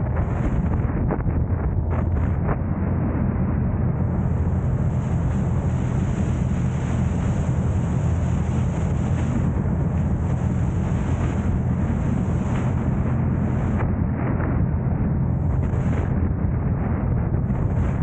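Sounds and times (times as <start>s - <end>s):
road and wind noise: 0.0s - 18.0s.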